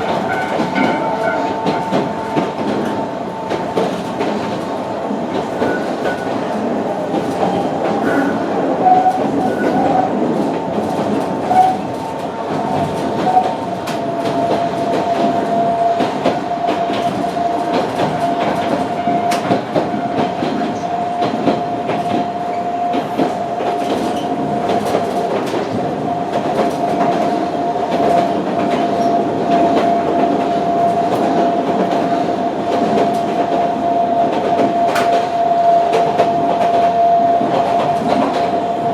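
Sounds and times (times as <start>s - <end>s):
train wheels on rails: 0.0s - 38.9s
clicks from the track: 16.0s - 22.3s, 22.9s - 32.1s, 34.3s - 38.5s.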